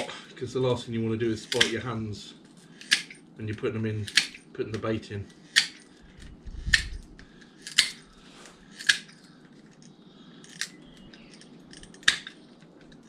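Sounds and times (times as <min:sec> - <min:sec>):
hand cutters snipping: 0:01.4 - 0:01.9, 0:02.8 - 0:03.2, 0:04.1 - 0:04.9, 0:05.5 - 0:08.1, 0:08.8 - 0:09.2.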